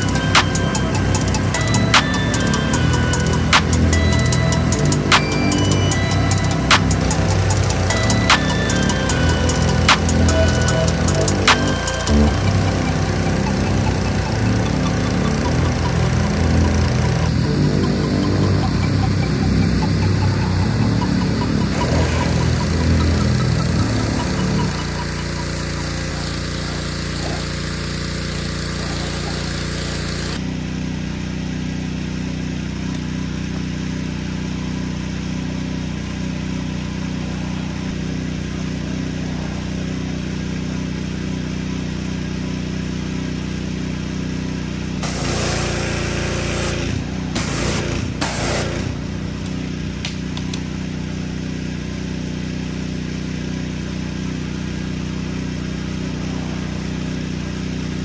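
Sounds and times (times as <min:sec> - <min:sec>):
spray hissing: 0:00.0 - 0:30.4, 0:45.0 - 0:49.7
engine idling: 0:00.0 - 0:58.0.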